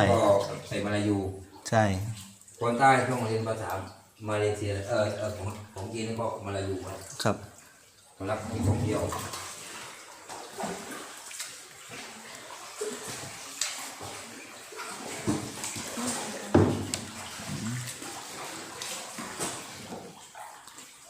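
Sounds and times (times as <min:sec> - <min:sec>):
paddle splashing in water: 0:06.8 - 0:21.0.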